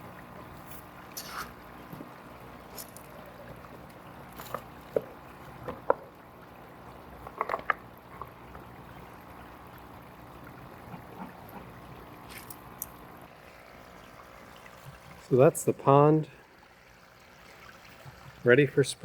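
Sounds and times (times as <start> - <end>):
water trickling: 0.0 - 18.7
water drips and plops: 16.6 - 18.4.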